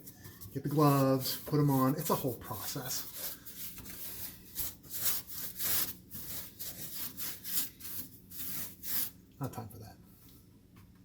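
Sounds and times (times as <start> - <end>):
applicator scrubbing on metal: 0.6 - 9.2.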